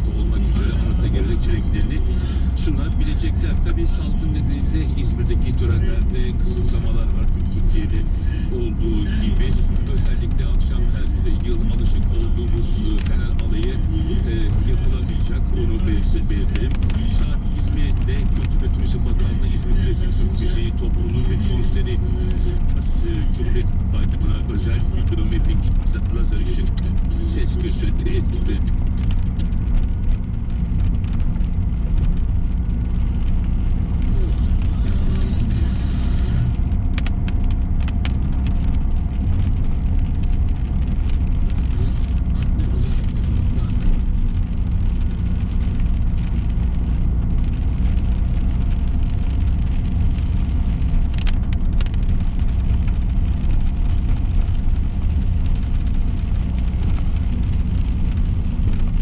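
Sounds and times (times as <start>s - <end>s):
car engine and tyres rumbling: 0.0s - 59.0s
tyres hissing on wet road: 0.4s - 6.0s, 34.0s - 36.7s.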